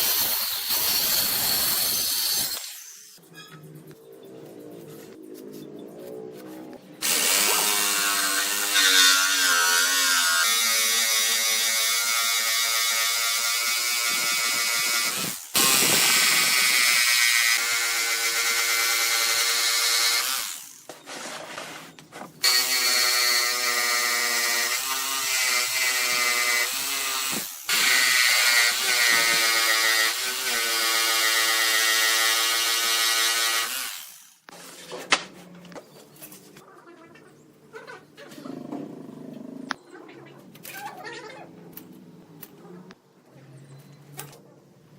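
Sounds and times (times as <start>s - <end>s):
power tool whining: 7.0s - 21.1s, 22.4s - 34.5s.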